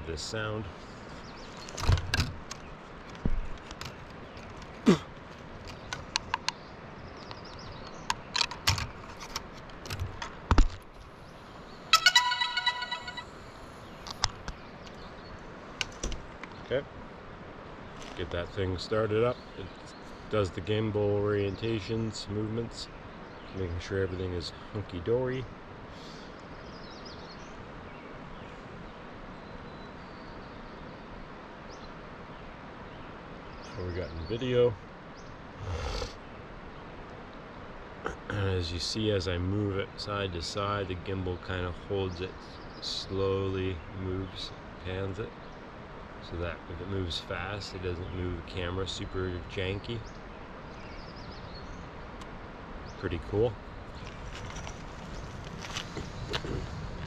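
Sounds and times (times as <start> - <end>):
faint bird chirps: 11.0 - 15.4.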